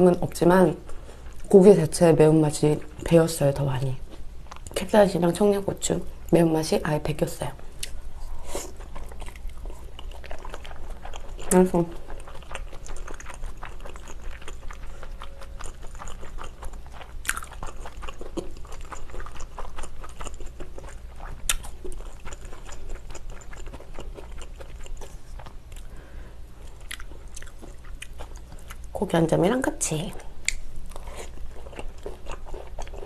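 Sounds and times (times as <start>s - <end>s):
close chewing and biting: 7.8s - 25.9s, 26.6s - 29.0s, 30.1s - 33.0s.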